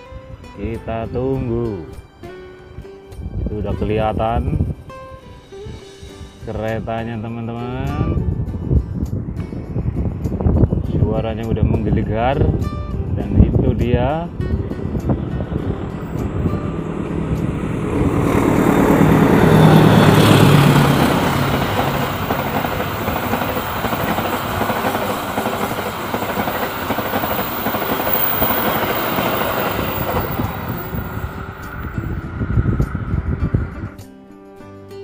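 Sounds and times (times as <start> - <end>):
diesel locomotive engine: 14.3 - 34.0
wheels rushing on rails: 14.4 - 34.1.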